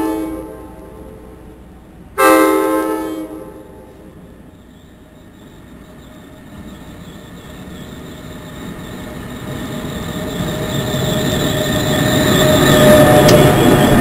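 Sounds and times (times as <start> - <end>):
train wheels rumbling: 0.0 - 14.0
high-pitched whine: 4.4 - 14.0.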